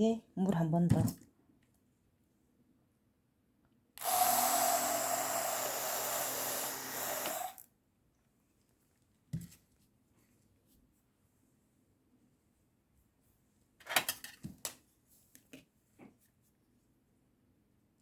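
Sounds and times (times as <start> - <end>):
sprayer hissing: 4.0 - 7.6.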